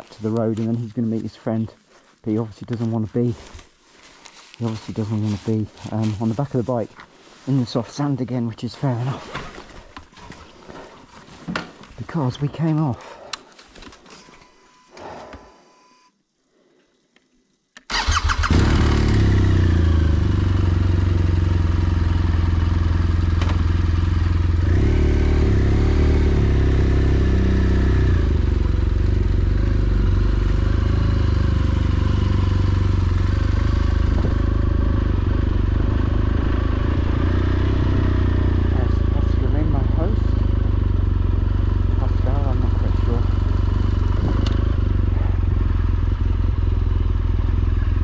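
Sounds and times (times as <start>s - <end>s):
motorcycle engine starting and idling: 17.8s - 48.0s.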